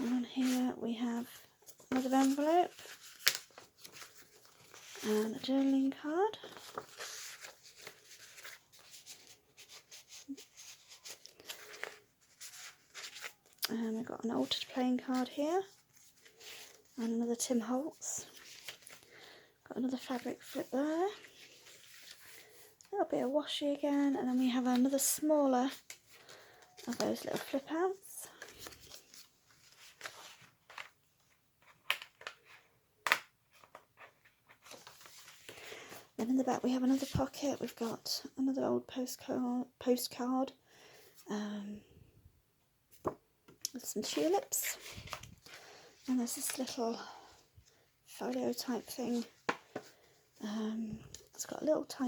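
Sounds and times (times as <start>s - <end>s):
paper pages rustling: 0.0s - 13.6s, 14.4s - 17.0s, 17.6s - 22.9s, 24.3s - 36.1s, 44.0s - 47.0s, 47.6s - 50.2s.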